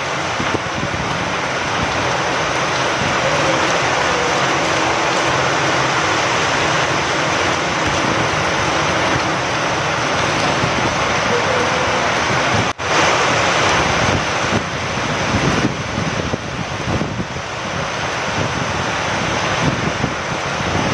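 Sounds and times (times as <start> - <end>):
heavy rain with wind: 0.0 - 20.9.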